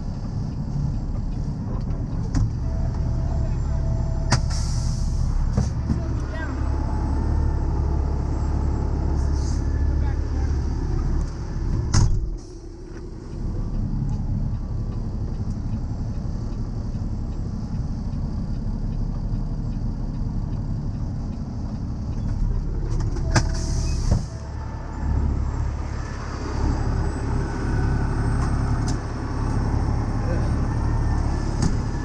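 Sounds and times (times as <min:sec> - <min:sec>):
truck diesel engine running: 0:00.0 - 0:32.0
short hiss: 0:04.4 - 0:05.3.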